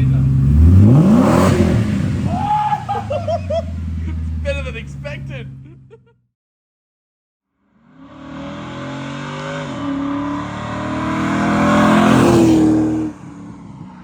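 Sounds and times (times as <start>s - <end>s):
car engine accelerating hard: 0.0s - 5.0s, 7.8s - 14.0s.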